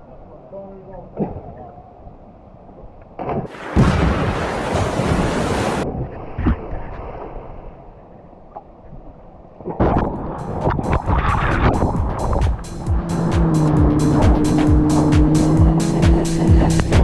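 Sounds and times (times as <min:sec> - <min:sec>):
water splashing and sloshing: 0:03.2 - 0:07.9
wind noise on microphone: 0:09.8 - 0:17.0.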